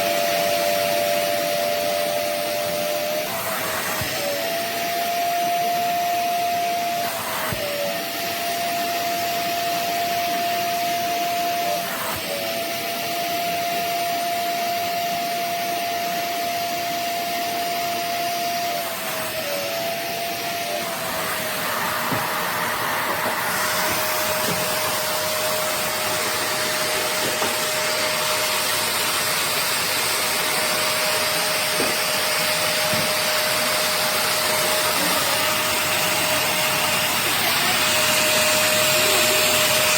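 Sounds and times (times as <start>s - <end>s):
vacuum suction motor whining: 0.0s - 39.9s
rushing hiss of drawn air: 21.4s - 29.7s.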